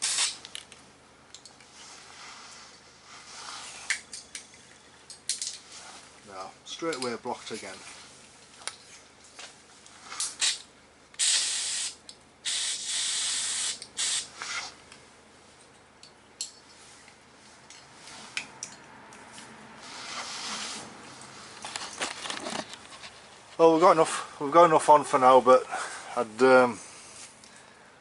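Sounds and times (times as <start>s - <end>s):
aerosol spray can hissing: 11.2s - 14.3s.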